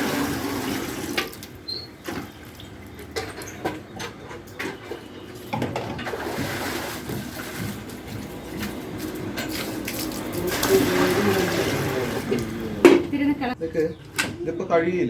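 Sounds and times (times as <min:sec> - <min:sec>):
water running and splashing: 0:00.0 - 0:01.6, 0:06.0 - 0:13.1.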